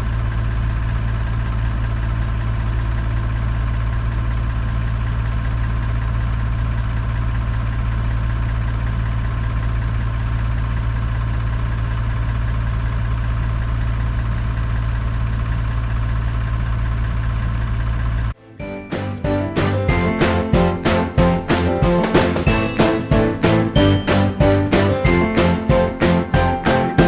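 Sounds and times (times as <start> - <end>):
large engine idling: 0.0 - 18.4.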